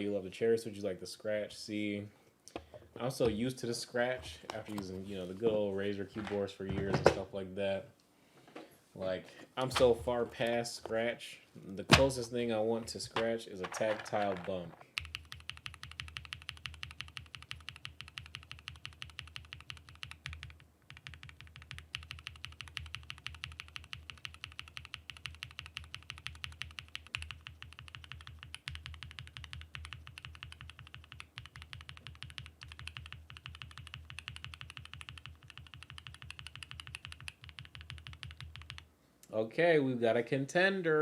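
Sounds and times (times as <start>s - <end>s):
mechanical keyboard typing: 13.7s - 38.9s.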